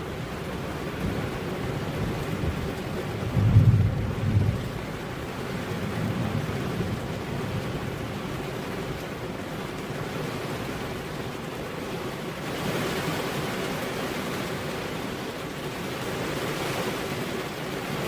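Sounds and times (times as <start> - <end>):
low rumble of thunder: 0.0 - 9.0
steady rain falling: 0.0 - 18.0.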